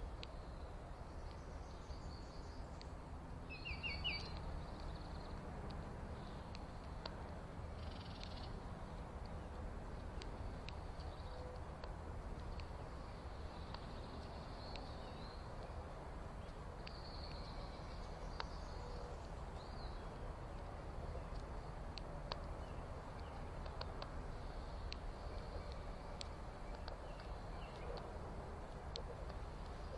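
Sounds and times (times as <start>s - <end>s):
sharp ticks: 0.0s - 0.5s, 2.6s - 18.8s, 19.4s - 29.9s
low outdoor rumble: 0.0s - 29.9s
bird chirps: 3.5s - 5.4s, 7.8s - 8.6s, 24.5s - 28.0s.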